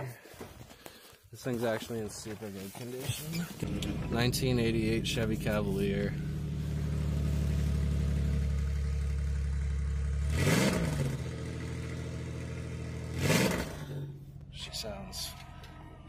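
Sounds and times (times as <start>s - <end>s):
car engine idling and revving: 3.6s - 16.0s.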